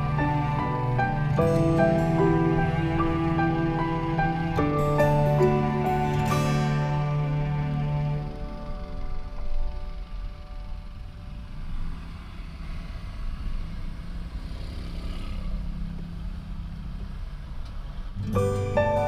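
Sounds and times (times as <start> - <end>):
music: 0.0 - 12.0, 18.2 - 19.0.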